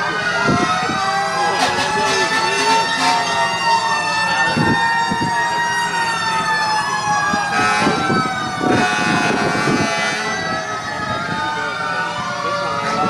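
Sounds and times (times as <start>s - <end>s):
fire engine sirens wailing: 0.0s - 13.0s
short noisy horn blasts: 1.6s - 3.5s, 7.6s - 10.4s.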